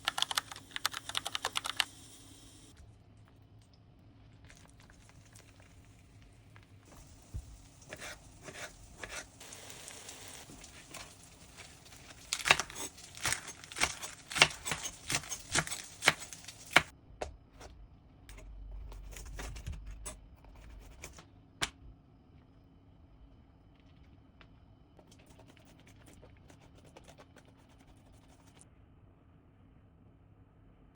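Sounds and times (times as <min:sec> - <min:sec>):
crinkling and tearing: 0:10.5 - 0:16.9.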